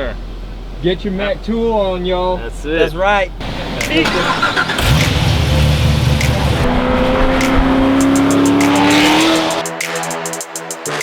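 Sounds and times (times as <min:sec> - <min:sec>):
vehicle engine running hard: 0:03.4 - 0:09.6
music: 0:03.7 - 0:11.0.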